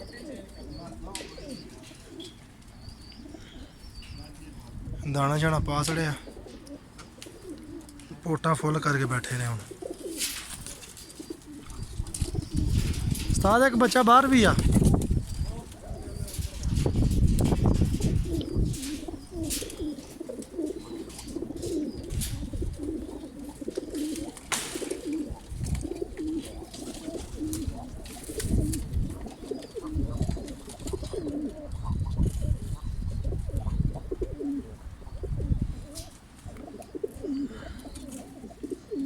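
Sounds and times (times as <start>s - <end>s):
pigeons cooing: 0.0s - 39.0s.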